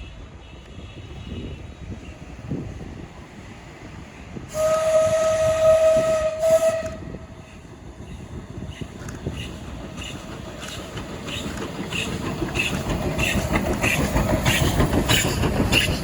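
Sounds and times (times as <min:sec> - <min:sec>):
low rumble of a train: 0:00.0 - 0:16.0
train whistle: 0:04.5 - 0:07.3.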